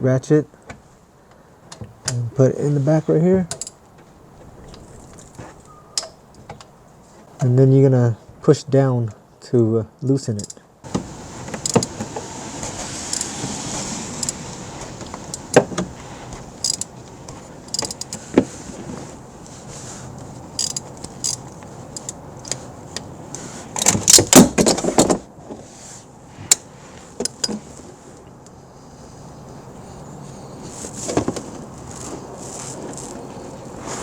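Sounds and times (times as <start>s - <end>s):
ratchet clicking: 16.6s - 16.9s, 17.7s - 18.2s, 20.5s - 23.1s.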